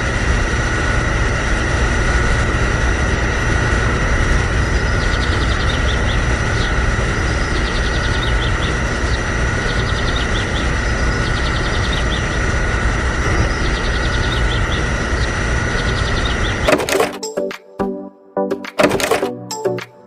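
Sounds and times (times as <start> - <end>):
small motor running: 0.0 - 17.1
birds chirping: 4.2 - 17.4.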